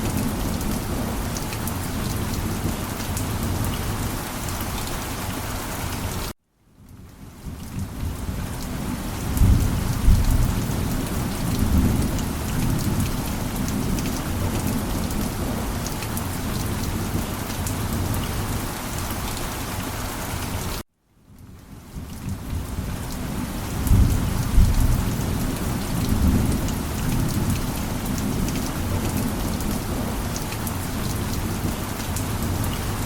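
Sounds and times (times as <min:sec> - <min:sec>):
heavy rain: 0:00.0 - 0:20.8, 0:21.4 - 0:33.0
low rumble of thunder: 0:06.8 - 0:18.6, 0:21.4 - 0:33.0.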